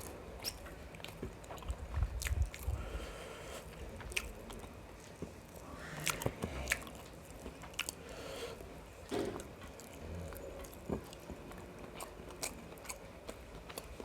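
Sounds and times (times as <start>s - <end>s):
person chewing wetly: 0.0s - 8.8s, 9.4s - 14.0s.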